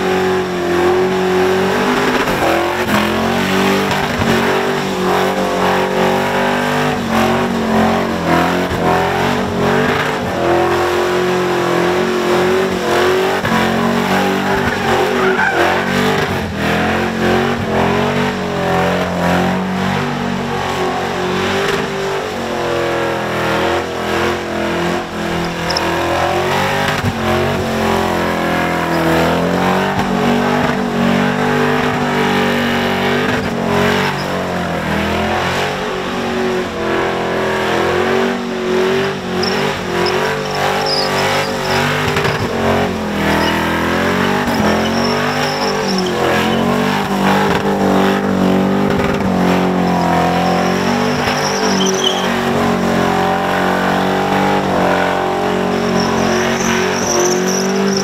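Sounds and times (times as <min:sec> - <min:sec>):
car engine at high revs: 0:00.0 - 0:58.0
tyres spinning: 0:21.6 - 0:29.3, 0:39.0 - 0:58.0.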